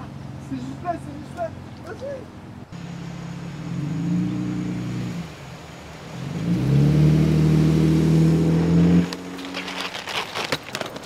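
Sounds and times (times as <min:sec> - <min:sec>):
car engine revving: 0:02.8 - 0:10.0.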